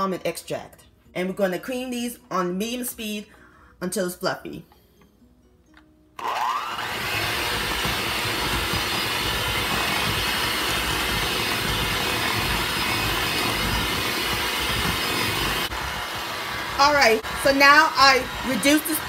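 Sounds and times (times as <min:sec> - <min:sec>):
electric hand mixer running: 0:06.2 - 0:19.0.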